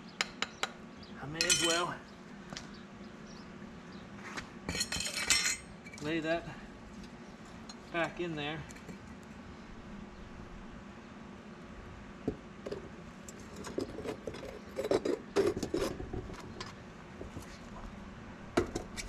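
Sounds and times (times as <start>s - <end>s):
metal tongs clinking on crucible: 1.4s - 1.9s, 4.7s - 6.1s.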